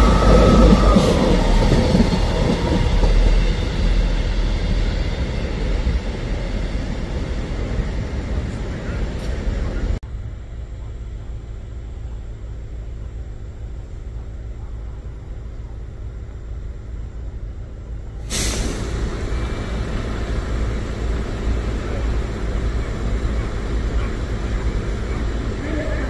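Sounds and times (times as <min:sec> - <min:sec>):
train low rumble: 0:00.0 - 0:26.0
loud rushing hiss: 0:18.2 - 0:26.0.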